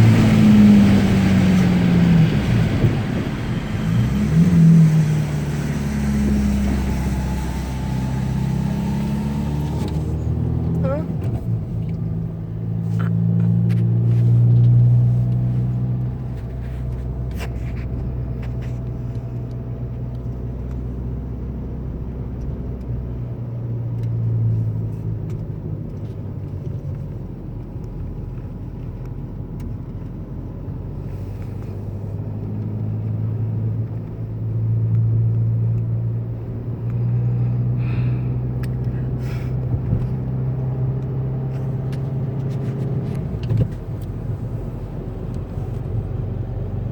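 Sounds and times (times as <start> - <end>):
diesel car engine droning: 0.0 - 46.9.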